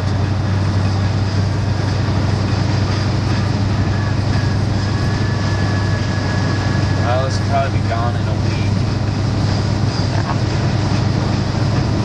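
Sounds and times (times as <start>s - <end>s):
truck engine and road drone: 0.0s - 12.0s
faint high whine: 3.4s - 8.8s.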